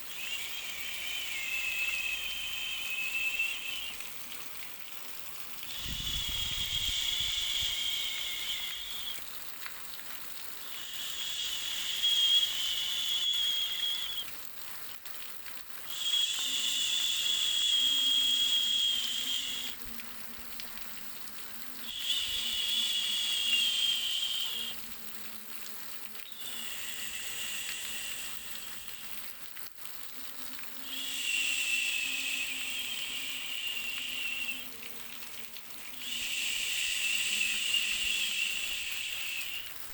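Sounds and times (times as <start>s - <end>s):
high insect-like buzzing call: 0.0s - 4.1s, 5.7s - 9.3s, 10.7s - 14.2s, 15.9s - 19.9s, 21.8s - 24.8s, 26.3s - 29.3s, 30.8s - 39.8s
faint steady hiss: 0.0s - 39.9s.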